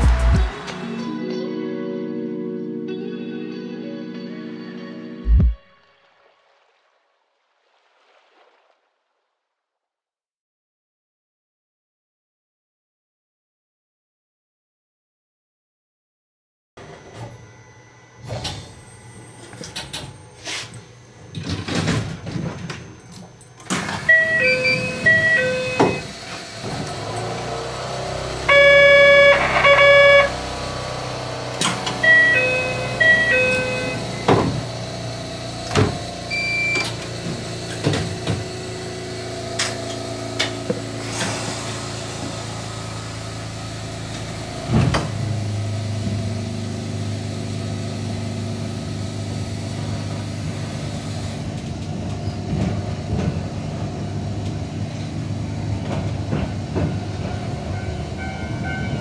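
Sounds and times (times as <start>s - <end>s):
low train motor hum: 16.8s - 59.0s
loud pitched tone: 24.0s - 26.3s, 28.2s - 34.4s
short electronic chimes: 24.1s - 26.1s, 28.4s - 30.5s, 31.8s - 34.3s.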